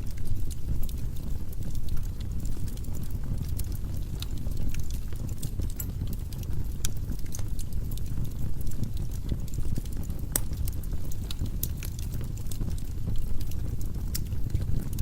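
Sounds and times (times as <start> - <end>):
firewood crackling: 0.0 - 15.0.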